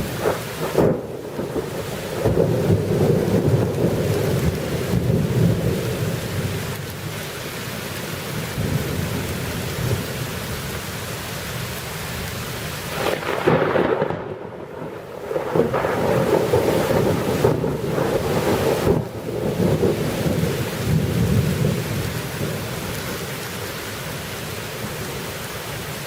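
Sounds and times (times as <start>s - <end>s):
thunder rumbling: 0.0s - 7.0s, 12.9s - 23.0s
steady rain: 0.0s - 26.0s.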